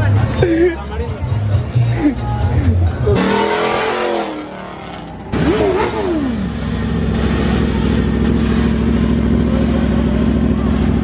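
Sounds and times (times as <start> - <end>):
vehicle engine revving: 3.0 - 11.0.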